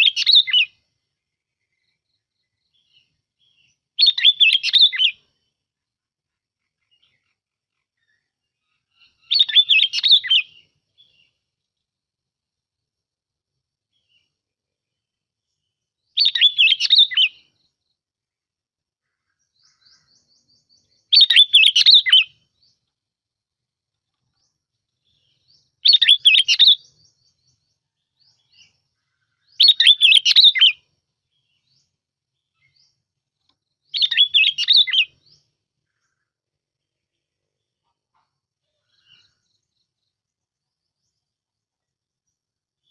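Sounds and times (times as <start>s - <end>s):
bulbul singing: 0.0s - 0.9s, 1.6s - 5.4s, 8.0s - 11.4s, 16.1s - 17.8s, 19.5s - 22.9s, 24.3s - 36.2s.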